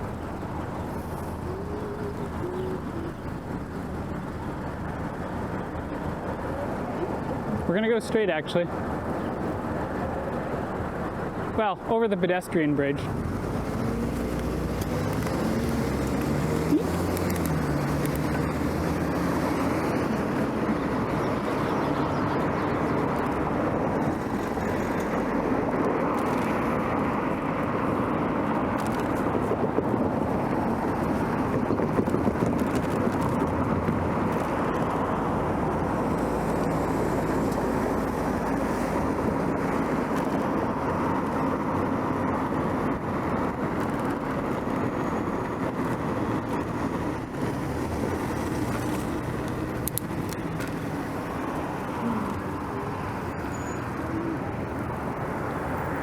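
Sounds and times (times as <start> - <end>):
bicycle tyres rolling: 13.2 - 41.4, 43.6 - 53.8.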